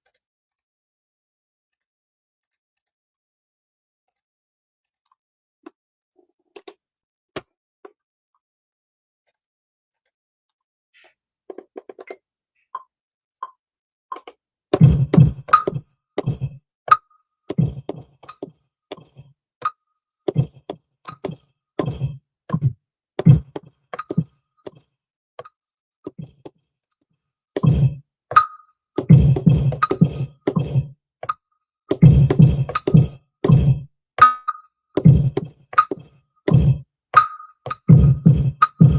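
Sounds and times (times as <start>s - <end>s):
punchy kick and snare hits: 29.1s - 30.9s, 32.0s - 33.8s, 35.0s - 35.5s, 36.5s - 36.8s, 37.9s - 38.9s.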